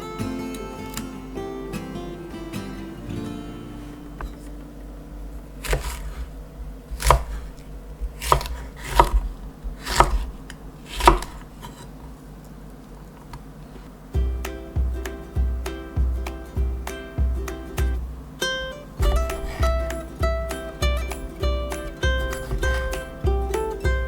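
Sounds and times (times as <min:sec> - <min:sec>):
soft guitar music: 0:00.0 - 0:06.2, 0:14.0 - 0:24.0
knife cutting on cutting board: 0:05.6 - 0:12.0, 0:19.0 - 0:20.2, 0:21.2 - 0:23.6.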